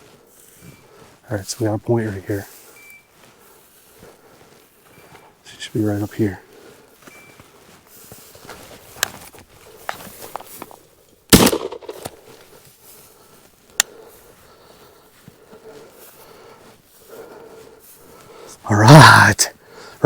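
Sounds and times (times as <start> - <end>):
faint footsteps: 0.0 - 18.7
crackling in vegetation: 0.0 - 20.0
shotgun blast: 11.3 - 12.2.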